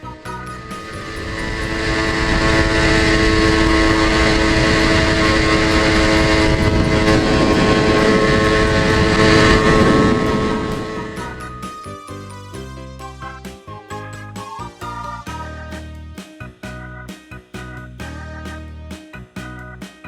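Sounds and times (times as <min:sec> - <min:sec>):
two-stroke motorcycle engine: 0:01.4 - 0:11.2.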